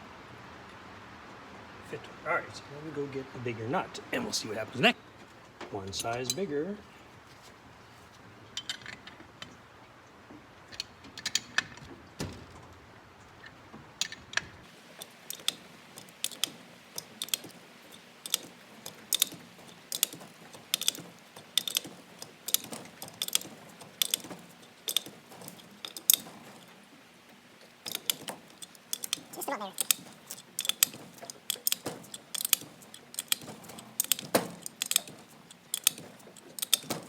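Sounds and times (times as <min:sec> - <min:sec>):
metal tools clinking: 0:05.8 - 0:06.5, 0:14.0 - 0:26.9, 0:27.6 - 0:37.0
ratchet wrench clicking: 0:15.0 - 0:26.7, 0:27.9 - 0:37.0.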